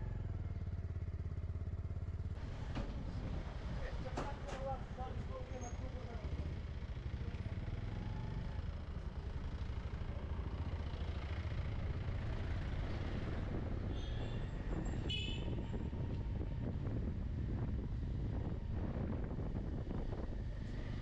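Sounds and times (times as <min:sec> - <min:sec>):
motorbike engine rumble: 0:00.0 - 0:21.0.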